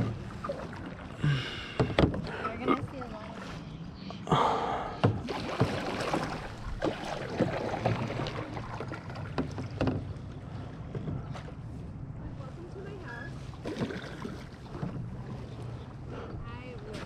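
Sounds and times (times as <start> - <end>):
paddle splashing through water: 0.0 - 3.8, 5.0 - 11.8, 13.3 - 16.2.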